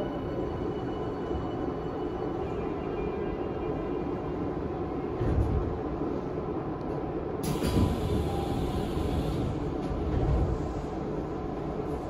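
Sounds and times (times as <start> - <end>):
train wheels rumbling on rail: 4.5 - 12.0.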